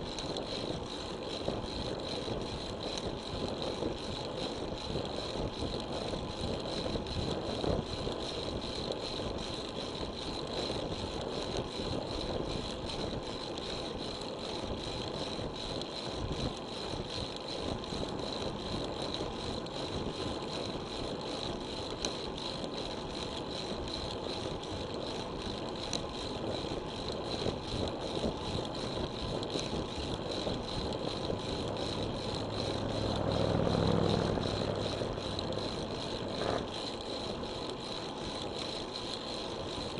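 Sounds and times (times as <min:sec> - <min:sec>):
wind and road noise: 0:00.0 - 0:39.9
motor vehicle passing: 0:31.3 - 0:36.7.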